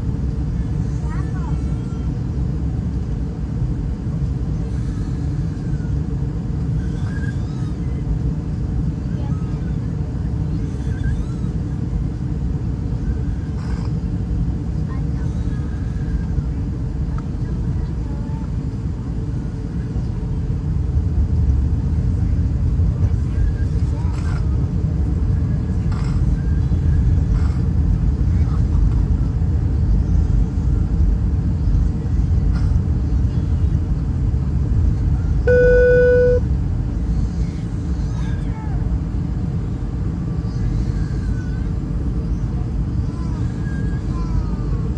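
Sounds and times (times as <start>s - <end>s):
airliner cabin rumble: 0.0s - 44.9s
single beep: 35.5s - 36.4s.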